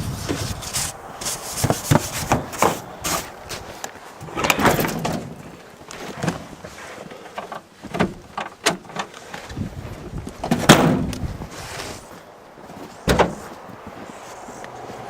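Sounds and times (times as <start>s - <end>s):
knocks and scrapes on truck body: 0.0s - 5.4s, 10.4s - 12.0s, 13.0s - 13.6s
loud metal clunk: 10.5s - 11.2s.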